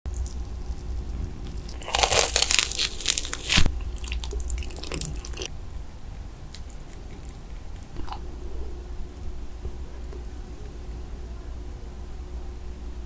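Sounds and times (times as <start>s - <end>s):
crunchy bite: 0.1s - 5.5s
chewing: 0.1s - 10.8s.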